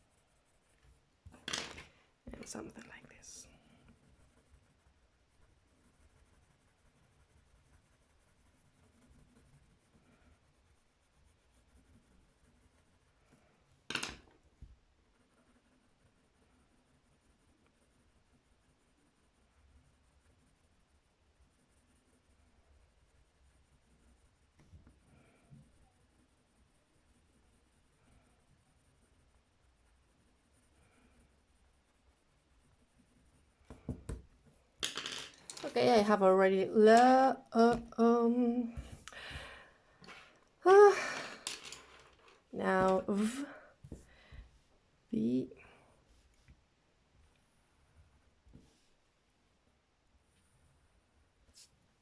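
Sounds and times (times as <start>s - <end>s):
pencil scratching on paper: 0.0s - 1.3s, 2.3s - 34.6s, 42.6s - 44.1s.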